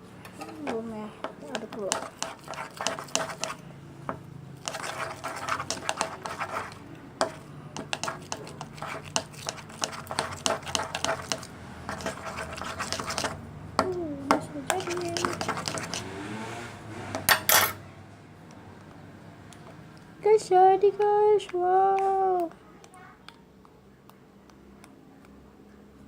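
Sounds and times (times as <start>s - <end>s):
slime being stirred: 1.5s - 3.6s, 4.6s - 16.2s.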